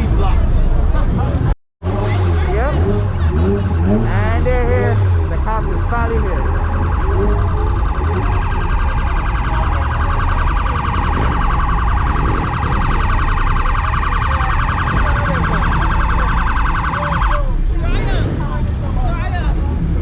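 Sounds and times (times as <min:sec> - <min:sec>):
police siren warbling: 0:04.6 - 0:18.3.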